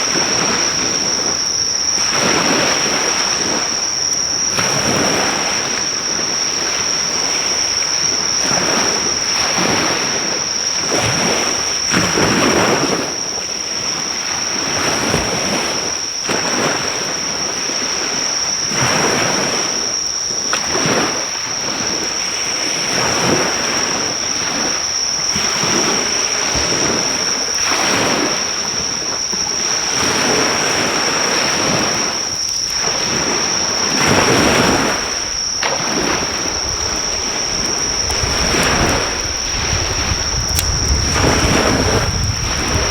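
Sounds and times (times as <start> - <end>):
surf washing on beach: 0.0 - 42.9
high-pitched insect drone: 23.9 - 42.9
campfire crackling: 32.3 - 42.9.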